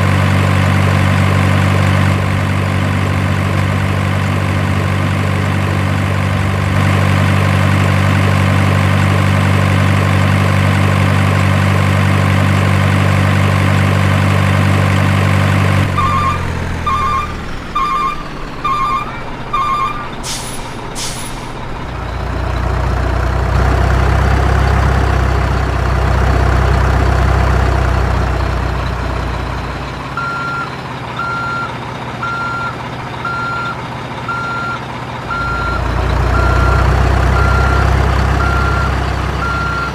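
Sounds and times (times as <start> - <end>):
diesel engine idling: 0.0 - 39.9
reversing beeper: 15.9 - 20.6, 30.2 - 39.9
air brake hisses: 20.2 - 21.6.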